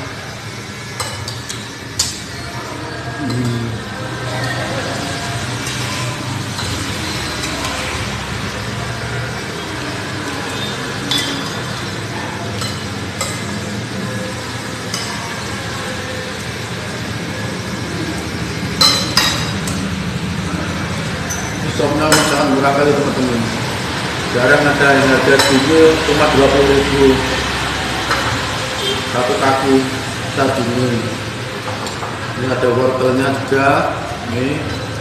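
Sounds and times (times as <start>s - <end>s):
cutlery clinking against bowl: 0.9s - 2.4s, 3.2s - 3.7s, 5.6s - 8.0s, 10.3s - 13.7s, 14.8s - 15.5s, 18.7s - 19.9s, 21.3s - 22.5s, 25.3s - 25.7s, 31.6s - 32.3s.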